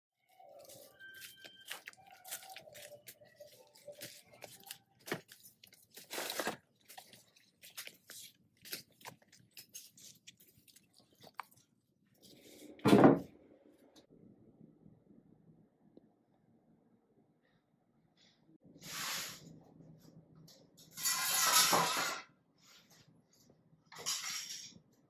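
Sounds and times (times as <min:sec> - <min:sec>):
clicks and scraping handling noises: 0:00.6 - 0:11.6.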